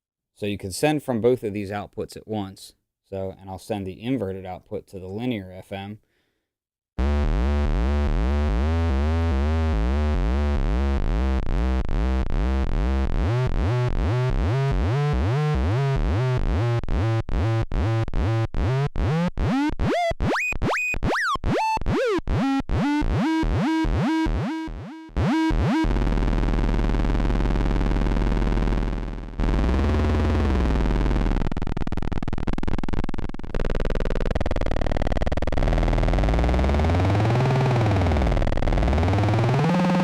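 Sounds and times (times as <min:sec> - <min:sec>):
steady buzzing tone: 0:07.0 - 0:40.0
synthesizer warbling sweeps: 0:19.4 - 0:26.0.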